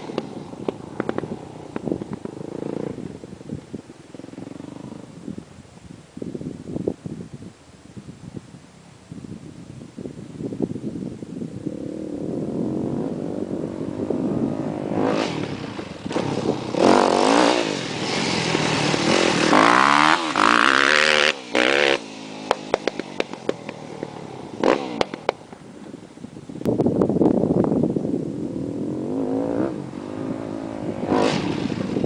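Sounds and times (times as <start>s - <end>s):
dirt bike engine revving: 2.2s - 3.2s, 11.6s - 25.3s, 28.5s - 32.0s.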